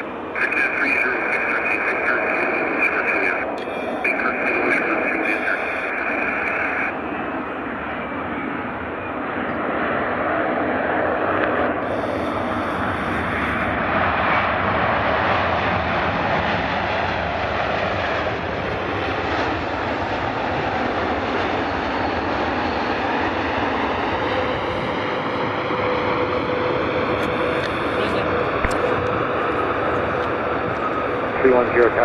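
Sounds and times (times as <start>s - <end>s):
jet engines roaring: 0.0s - 32.0s
steady hum: 2.9s - 6.8s, 11.8s - 13.8s, 24.4s - 32.0s.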